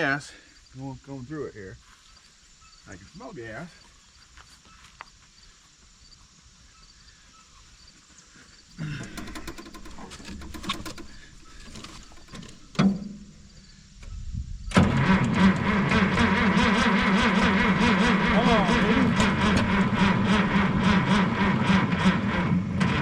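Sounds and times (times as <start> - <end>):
tractor engine cranking: 8.7 - 23.0.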